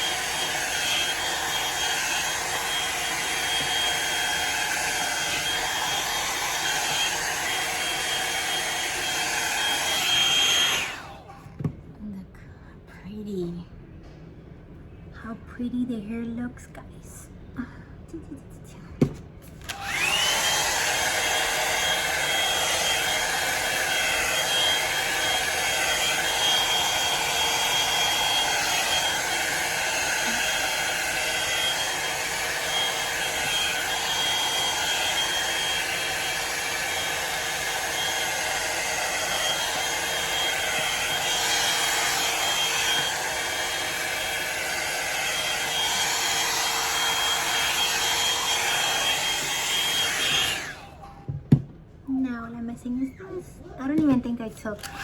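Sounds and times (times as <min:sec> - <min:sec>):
hair dryer motor whine: 0:00.0 - 0:11.2, 0:19.6 - 0:51.1, 0:54.8 - 0:55.0.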